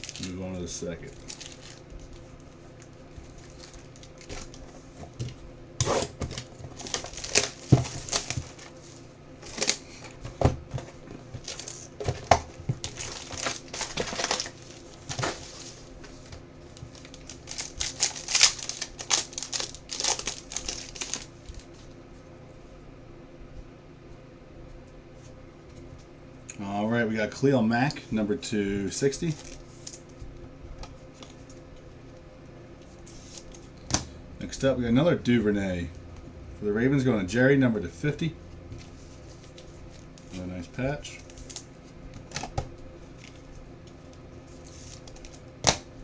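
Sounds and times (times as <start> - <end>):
wrapper tearing and crinkling: 0.0 - 0.4, 1.0 - 4.6, 6.0 - 8.8, 11.4 - 15.9, 16.9 - 21.6.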